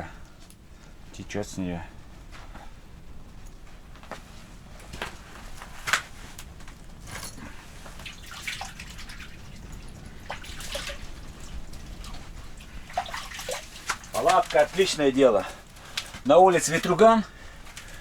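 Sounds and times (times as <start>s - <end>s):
water dripping off fish: 5.9s - 18.0s.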